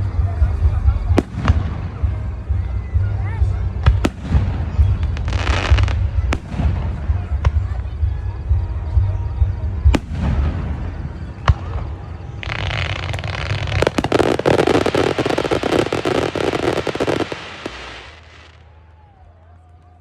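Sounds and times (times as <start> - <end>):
firework bangs: 1.0 - 2.4, 3.8 - 7.8, 9.8 - 18.6
fireworks crackling pops: 3.8 - 7.7, 9.9 - 18.6
firework hiss: 12.4 - 18.6.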